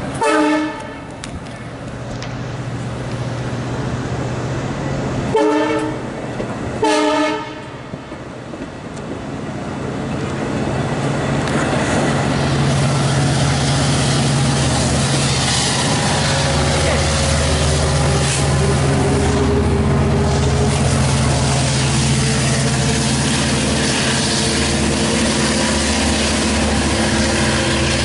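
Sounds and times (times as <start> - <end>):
diesel locomotive engine drone: 0.0 - 28.0
train wheels on rails: 0.0 - 28.0
train horn blasts: 0.2 - 1.1, 5.3 - 6.0, 6.8 - 8.0.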